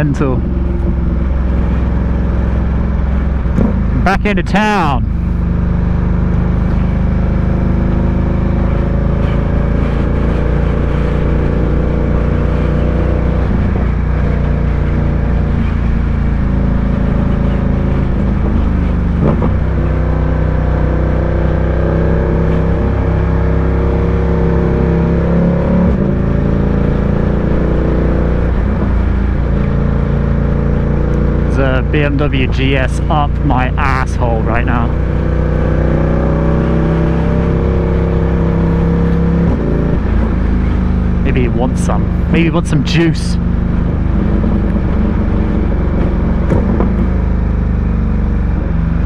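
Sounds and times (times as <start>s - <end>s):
motorcycle engine running: 0.0s - 25.3s.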